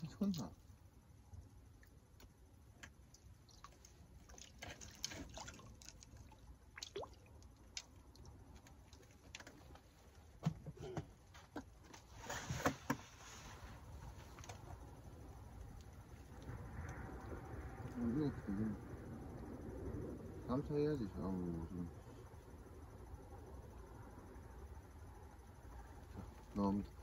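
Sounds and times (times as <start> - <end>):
water dripping and splashing: 1.8 - 10.0.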